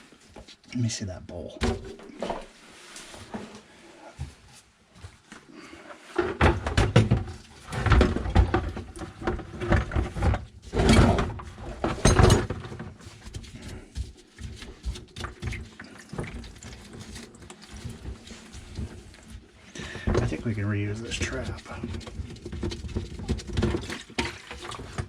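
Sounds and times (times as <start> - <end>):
plastic pipe parts clunking: 6.0 - 13.7, 14.8 - 25.0.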